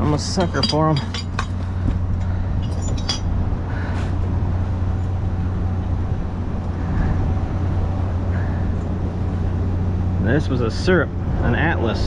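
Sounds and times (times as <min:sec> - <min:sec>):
glass jars clinking: 0:00.0 - 0:01.7
wind on microphone: 0:01.7 - 0:09.9.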